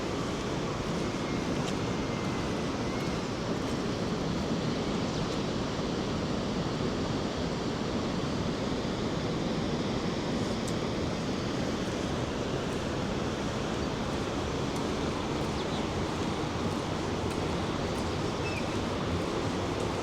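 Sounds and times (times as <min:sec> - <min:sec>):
waterfall roaring: 0:11.8 - 0:20.0.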